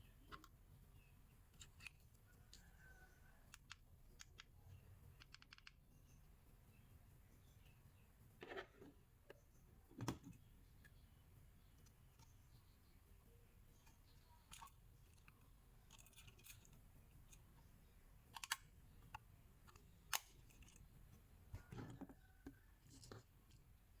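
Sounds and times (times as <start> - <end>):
sharp clicks: 3.5 - 5.8.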